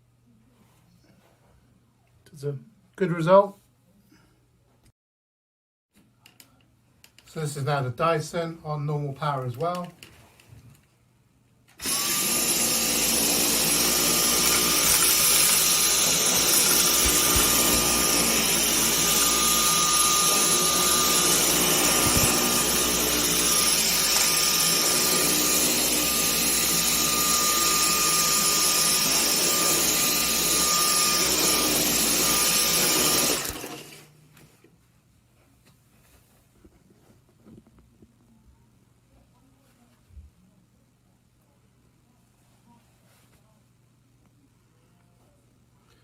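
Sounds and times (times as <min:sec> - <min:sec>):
vacuum cleaner running: 0:11.8 - 0:34.1.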